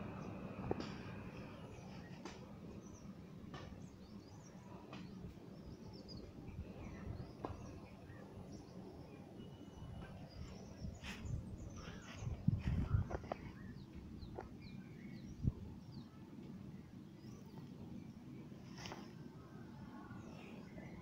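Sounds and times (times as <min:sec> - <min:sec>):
small birds chirping: 0:00.1 - 0:21.0
low microphone rumble: 0:10.3 - 0:15.8.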